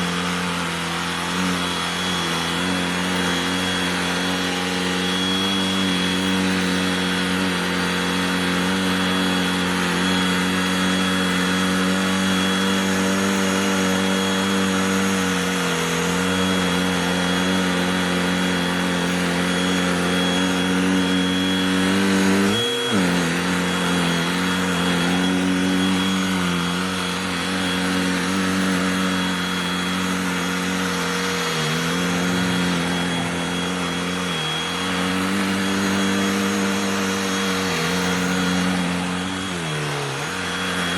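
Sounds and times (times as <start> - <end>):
handheld vacuum motor running: 0.0 - 40.9.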